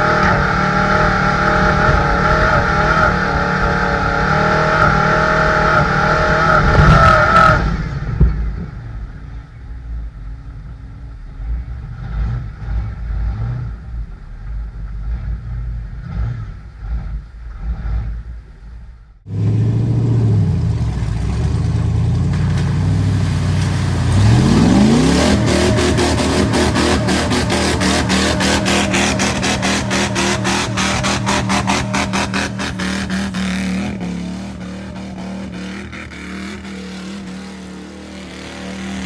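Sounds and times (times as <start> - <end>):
truck engine running under load: 19.3 - 39.0.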